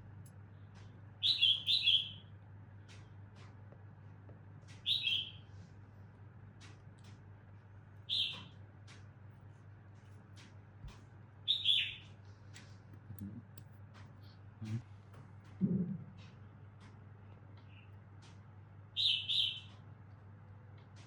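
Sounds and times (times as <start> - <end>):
low steady hum: 0.0 - 21.0
bird chirping: 1.2 - 2.3, 4.8 - 5.5, 8.1 - 8.5, 11.5 - 12.1, 19.0 - 19.8.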